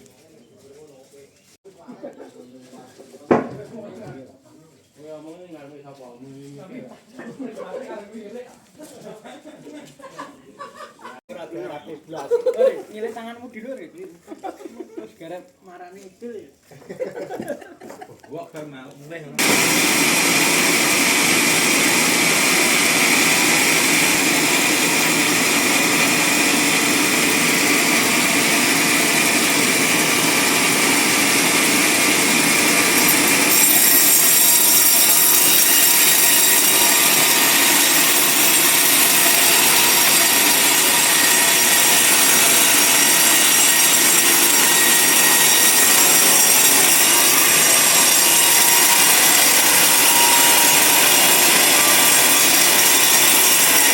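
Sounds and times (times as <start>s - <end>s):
band saw cutting log: 19.4s - 53.9s.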